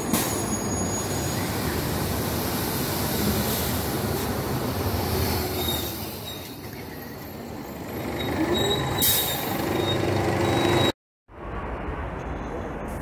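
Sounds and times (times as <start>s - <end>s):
bus engine running: 7.3s - 10.9s.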